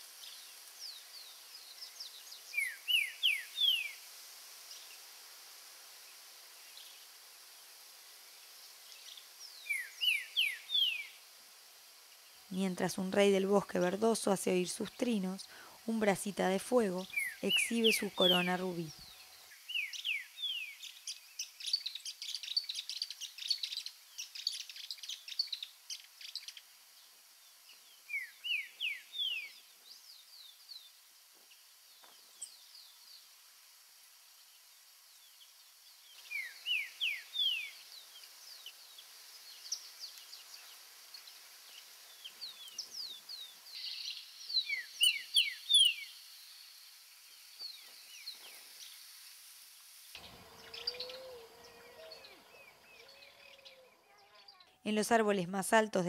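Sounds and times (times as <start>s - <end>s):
high bird chirps: 50.2s - 54.8s
bird whistling downslurred phrases: 50.6s - 54.6s.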